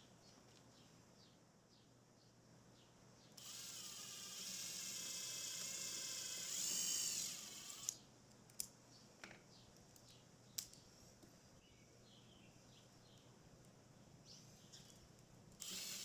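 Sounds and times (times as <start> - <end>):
power drill whining: 3.4 - 8.0, 15.6 - 16.0.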